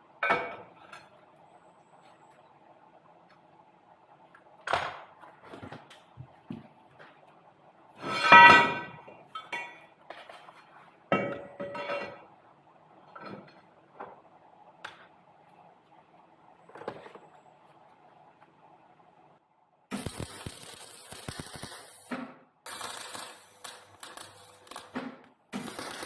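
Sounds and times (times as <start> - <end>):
steel pieces clinking: 19.9 - 22.1, 22.7 - 24.9, 25.6 - 26.0.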